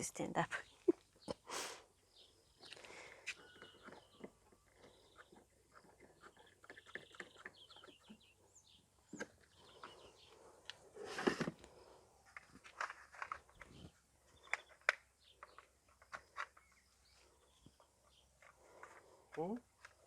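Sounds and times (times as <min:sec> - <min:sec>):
faint bird chirps: 0:00.5 - 0:10.6
plastic parts clicking and knocking: 0:10.6 - 0:16.9, 0:17.6 - 0:20.0
plastic scrape: 0:11.0 - 0:16.7.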